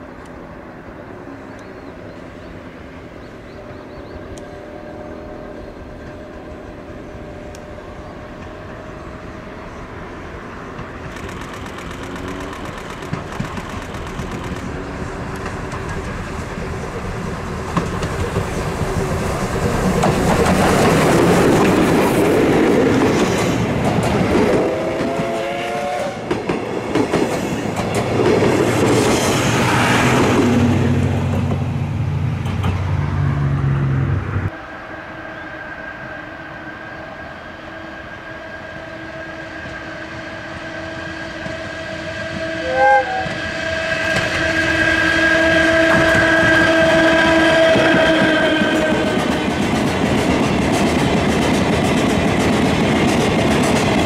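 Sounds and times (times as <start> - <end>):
train wheels clattering: 10.7 - 30.5, 45.7 - 54.0
train horn blast: 24.7 - 26.2, 37.7 - 49.2.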